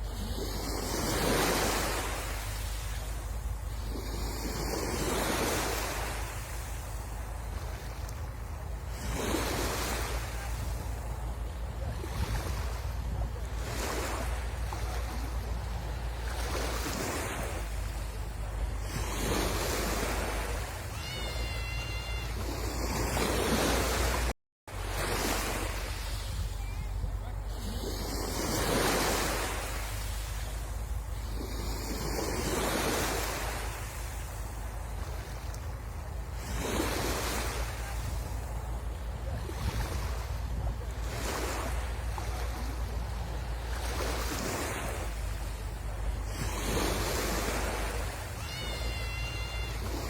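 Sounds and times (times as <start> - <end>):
sea waves washing on beach: 0.0 - 50.0
wind buffeting microphone: 10.5 - 21.0
high steady tone: 20.8 - 22.8.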